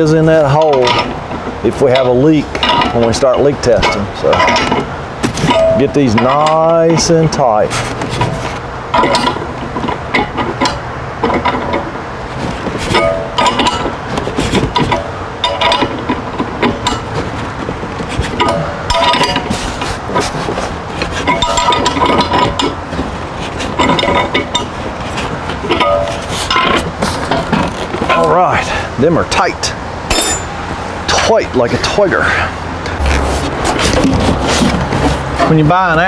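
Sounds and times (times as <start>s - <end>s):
wrench clinking on metal fittings: 30.1s - 30.6s.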